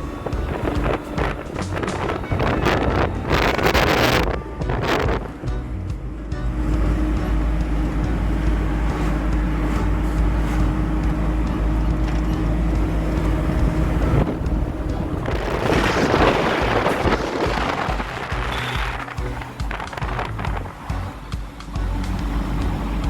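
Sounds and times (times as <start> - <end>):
car engine and road rumble: 0.0 - 23.0
rush of noise: 0.0 - 23.0.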